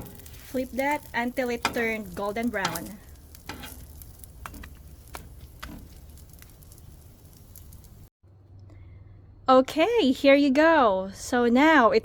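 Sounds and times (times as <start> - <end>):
crackles and pops: 0.0 - 8.1
food sizzling in a pan: 0.0 - 8.1.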